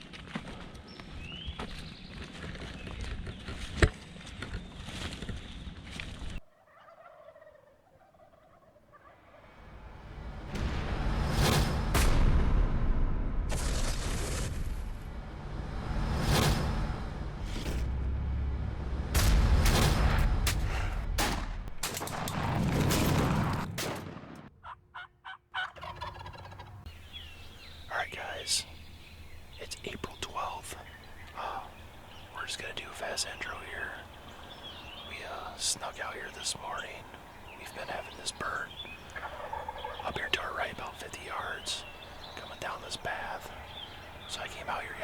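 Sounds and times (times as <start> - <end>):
turkey gobbling: 6.4 - 9.5, 24.6 - 27.6, 33.8 - 40.6
rushing noise: 9.5 - 21.8
loud bangs: 10.0 - 24.5.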